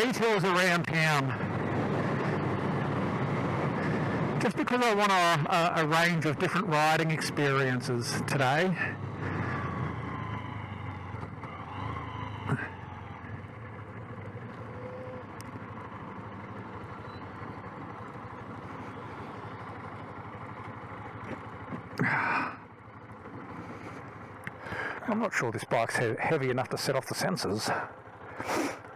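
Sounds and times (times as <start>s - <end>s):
road and wind rushing: 0.0s - 25.3s
small motorbike engine running: 0.0s - 25.4s, 26.0s - 28.9s.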